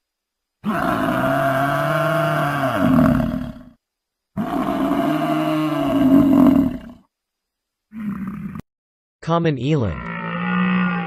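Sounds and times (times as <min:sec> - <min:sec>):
buffalo bellowing: 0:09.9 - 0:11.0.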